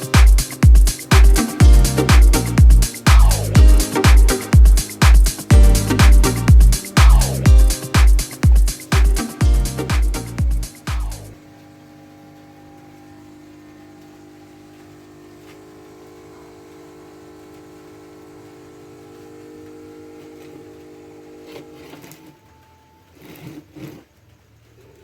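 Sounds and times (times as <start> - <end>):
small motor humming: 10.2 - 23.9.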